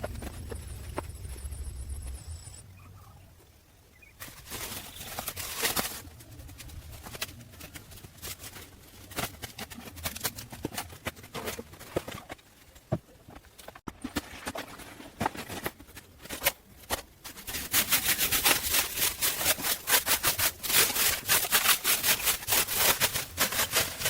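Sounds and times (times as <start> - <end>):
low hum: 0.0 - 5.3
scraping: 4.2 - 24.0.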